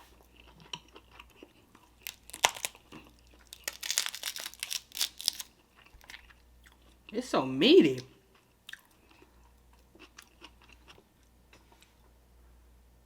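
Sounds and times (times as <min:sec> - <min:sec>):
chewing: 0:00.1 - 0:07.0, 0:08.3 - 0:12.0
crab shell cracking: 0:02.0 - 0:06.2.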